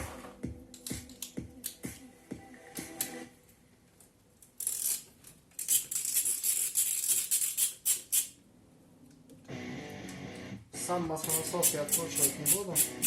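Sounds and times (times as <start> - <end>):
ratchet wrench clicking: 4.6 - 8.4, 11.2 - 13.0.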